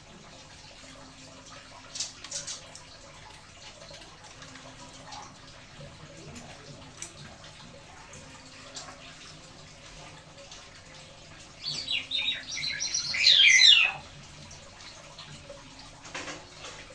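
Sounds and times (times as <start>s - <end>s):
starling singing high notes: 11.6s - 14.1s.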